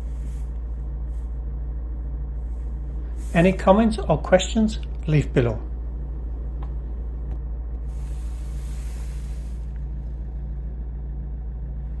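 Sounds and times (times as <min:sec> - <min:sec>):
car engine idling: 0:00.0 - 0:12.0
brief hiss: 0:07.9 - 0:09.8.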